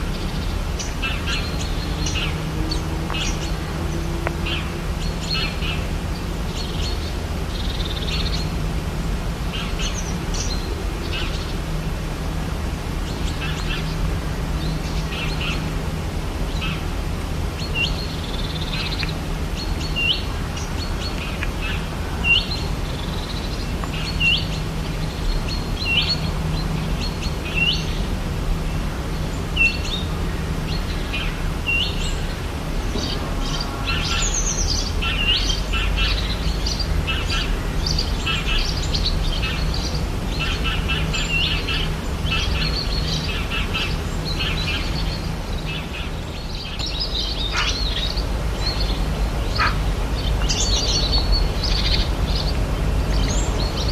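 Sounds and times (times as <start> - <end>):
birds chirping: 0.0 - 53.9
bird upswept call: 32.9 - 52.5.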